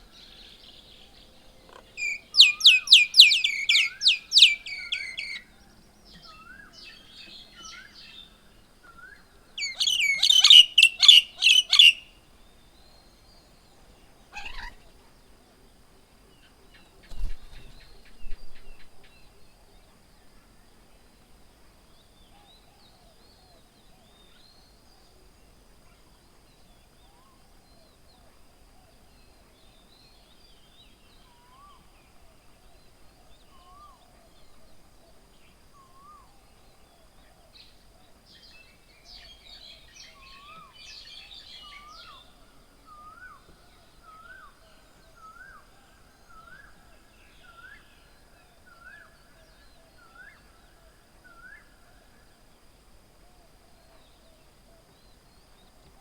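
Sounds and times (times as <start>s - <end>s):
birds chattering loudly: 1.6s - 5.4s, 9.6s - 12.0s, 14.3s - 15.0s.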